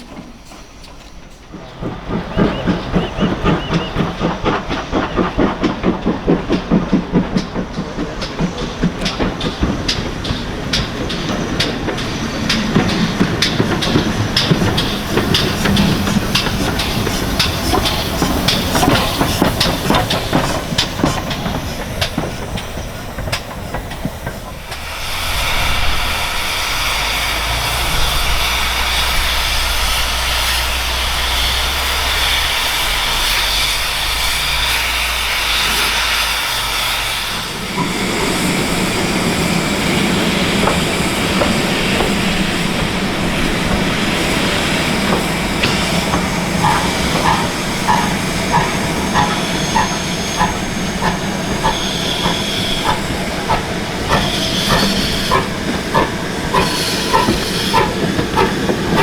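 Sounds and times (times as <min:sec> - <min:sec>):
steam hissing: 0:00.0 - 0:59.0
train wheels clicking on rail joints: 0:00.0 - 0:59.0
low rumble: 0:24.7 - 0:35.3.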